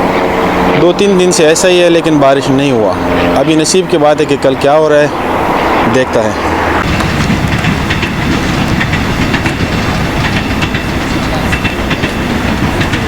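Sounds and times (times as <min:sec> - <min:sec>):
train rumble: 0:00.0 - 0:13.0
train wheels clattering on rails: 0:06.8 - 0:13.0.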